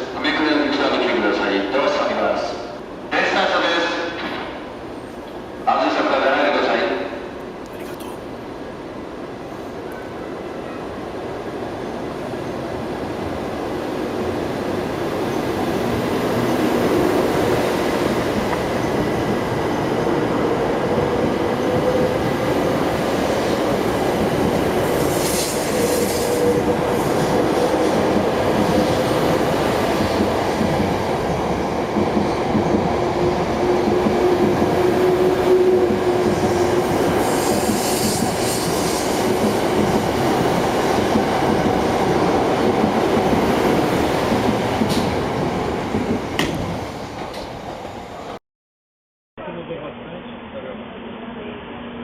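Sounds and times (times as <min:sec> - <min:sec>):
high-speed train rail rumble: 0:00.0 - 0:48.4
brief hissing rush: 0:25.0 - 0:26.5, 0:37.2 - 0:39.4.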